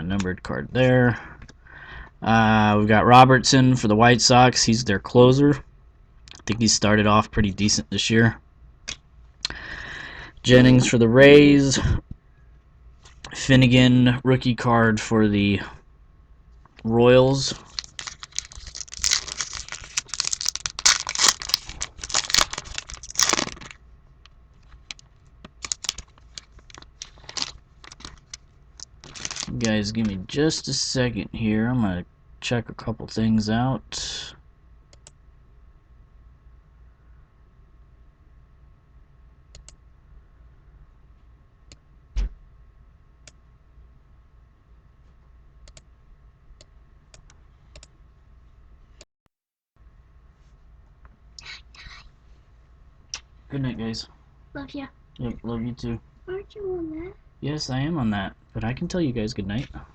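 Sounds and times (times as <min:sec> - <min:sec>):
faint steady hum: 0:00.0 - 0:49.0, 0:49.8 - 0:59.9
cards clicking and rustling: 0:17.6 - 0:23.8, 0:24.6 - 0:30.2
crinkly wrapper tearing and crumpling: 0:17.6 - 0:29.8
computer mouse clicking: 0:34.9 - 0:35.2, 0:39.5 - 0:39.8, 0:45.6 - 0:45.9, 0:46.6 - 0:47.9.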